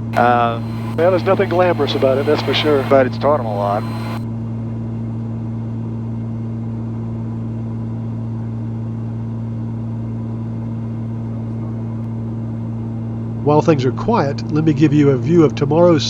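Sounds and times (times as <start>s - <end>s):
aircraft engines droning in cabin: 0.0s - 4.2s.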